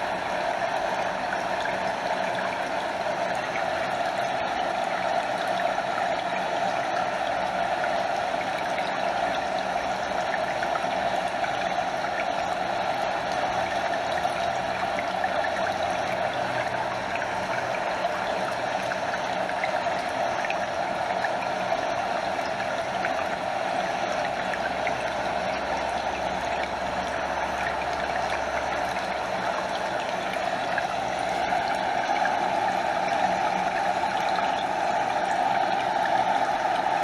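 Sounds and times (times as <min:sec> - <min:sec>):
stream over small waterfall: 0:00.0 - 0:37.0
water trickling and lapping: 0:00.0 - 0:37.0.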